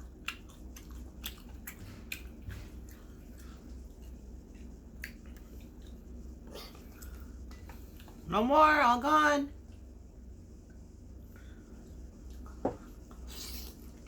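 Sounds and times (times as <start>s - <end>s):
chewing and biting food: 0.0s - 8.2s
low steady hum: 0.0s - 14.0s.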